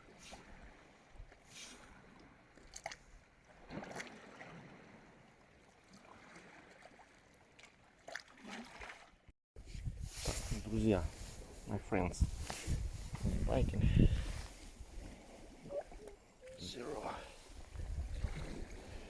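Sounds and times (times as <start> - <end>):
water lapping at shoreline: 0.0 - 19.0
soft rustles and scrapes: 9.6 - 15.6.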